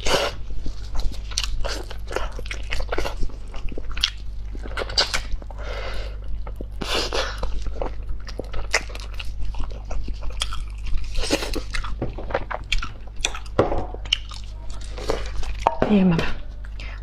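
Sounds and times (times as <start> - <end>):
person chewing and biting: 0.0 - 15.7.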